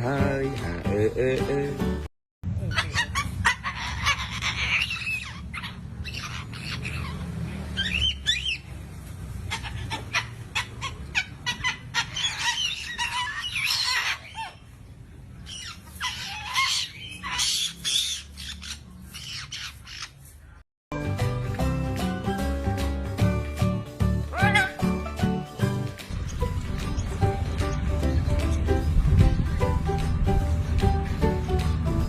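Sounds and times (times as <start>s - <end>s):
bird calling and squawking: 2.6s - 20.6s, 24.2s - 28.8s.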